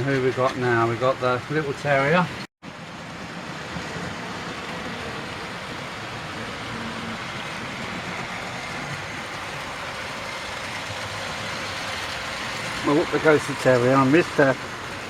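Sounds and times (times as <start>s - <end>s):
model train motors whirring: 3.1s - 15.0s.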